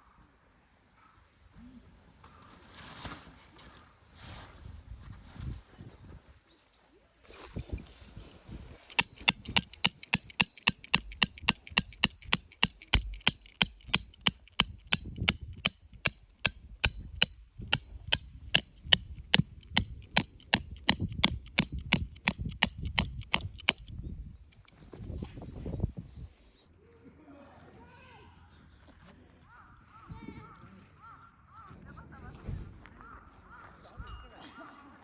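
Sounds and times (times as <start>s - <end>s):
ringing metallic strikes: 8.9s - 23.9s.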